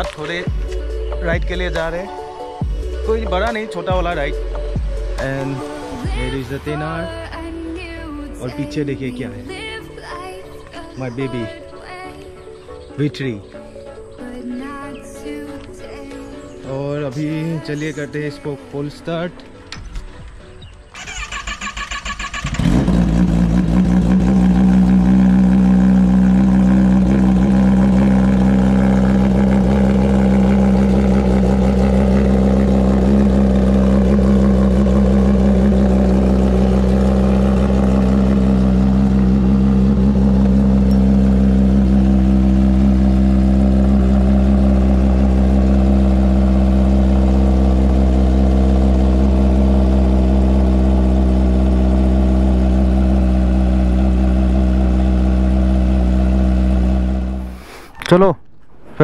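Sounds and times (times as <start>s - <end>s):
motorcycle engine starting and idling: 19.8s - 57.5s.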